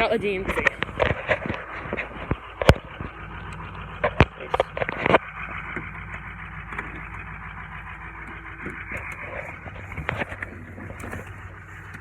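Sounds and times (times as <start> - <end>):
short knocks and crunches: 0.0 - 3.2
diesel engine idling: 0.0 - 12.0.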